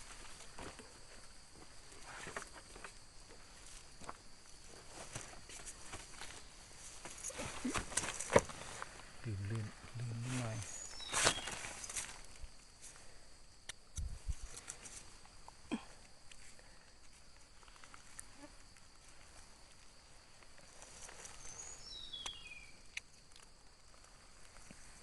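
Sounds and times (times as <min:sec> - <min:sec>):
footsteps on forest litter: 0:10.3 - 0:12.3.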